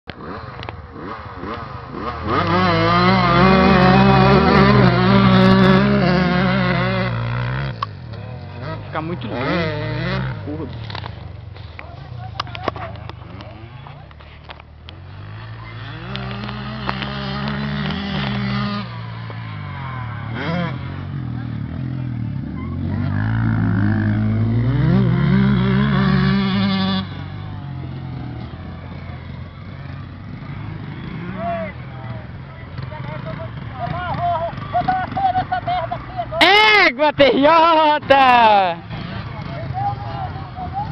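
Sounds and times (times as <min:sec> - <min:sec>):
close loud motorcycle engine: 0:00.1 - 0:40.9
motorcycle engine revving: 0:00.1 - 0:40.9.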